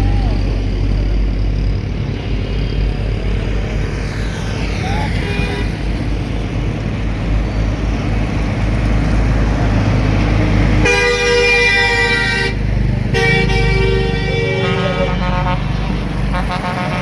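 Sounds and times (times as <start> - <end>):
traffic engine rumble: 0.0 - 17.0
long two-tone horn blast: 10.8 - 17.0
vehicle horn toot: 10.8 - 17.0.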